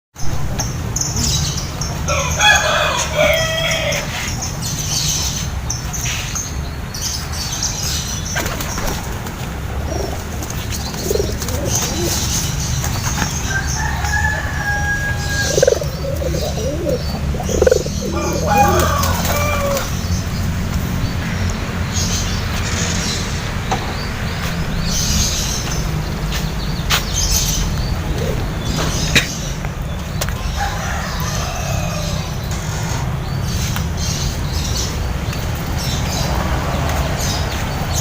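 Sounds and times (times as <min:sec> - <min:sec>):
birds calling: 0:00.2 - 0:38.0
pigeons flapping wings: 0:08.4 - 0:13.3.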